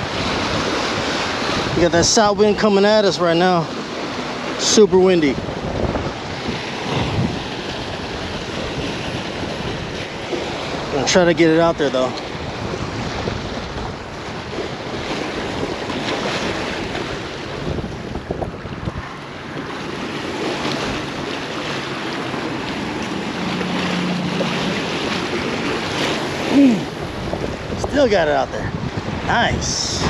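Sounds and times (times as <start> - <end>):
strong wind on microphone: 0.0 - 30.0
water lapping: 0.0 - 30.0.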